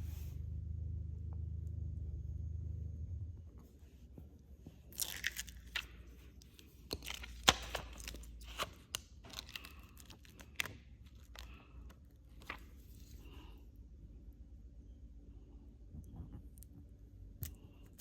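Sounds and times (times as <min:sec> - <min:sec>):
plastic film crinkling: 0:04.9 - 0:11.6.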